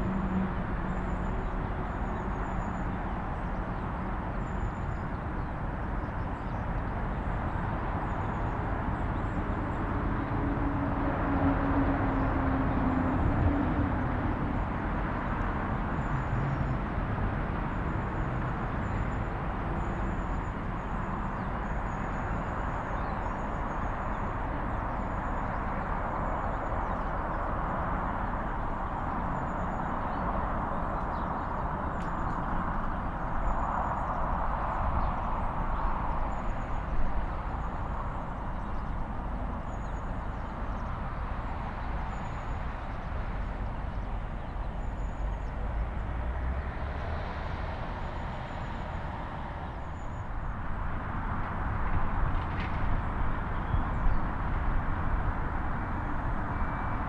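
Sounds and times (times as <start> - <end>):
distant traffic rumble: 0.0 - 57.0.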